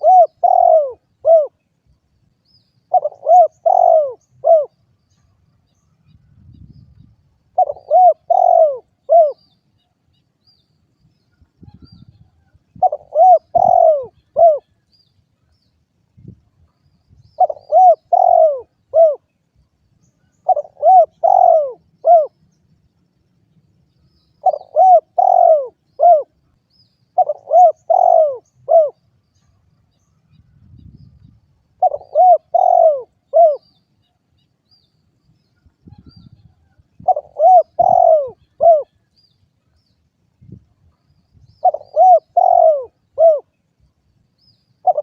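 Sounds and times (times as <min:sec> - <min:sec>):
dove cooing: 0:00.0 - 0:01.6, 0:02.9 - 0:04.8, 0:07.5 - 0:09.6, 0:11.6 - 0:14.8, 0:17.4 - 0:19.3, 0:20.4 - 0:22.4, 0:24.4 - 0:26.4, 0:27.2 - 0:29.0, 0:31.8 - 0:33.8, 0:35.8 - 0:39.0, 0:41.6 - 0:43.6, 0:44.8 - 0:45.0.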